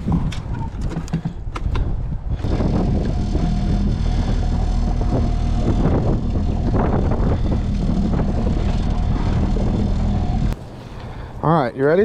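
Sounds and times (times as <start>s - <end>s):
outboard motor droning: 2.4s - 11.4s.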